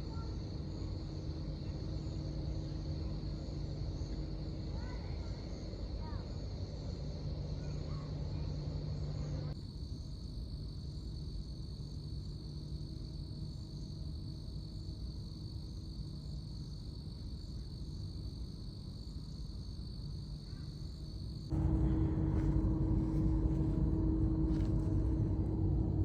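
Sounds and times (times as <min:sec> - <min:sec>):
insects chirring: 0:00.0 - 0:26.0
low rumble: 0:21.5 - 0:26.0.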